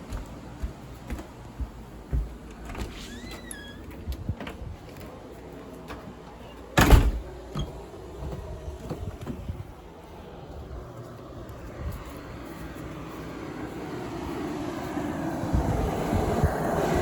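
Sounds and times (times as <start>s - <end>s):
door squeaking: 2.6s - 4.6s
door closing thump: 6.8s - 7.7s.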